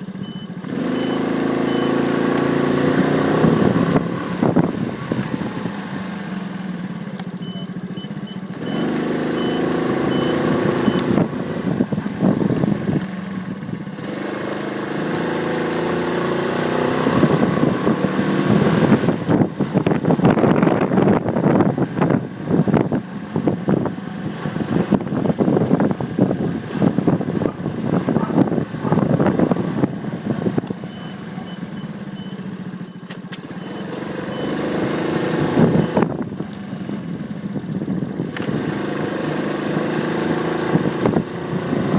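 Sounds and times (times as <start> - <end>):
motorcycle engine revving: 0.0 - 41.9
road noise: 0.0 - 41.9
wind noise: 3.3 - 5.8, 10.6 - 13.2, 17.0 - 30.9, 35.4 - 36.6, 40.6 - 41.9.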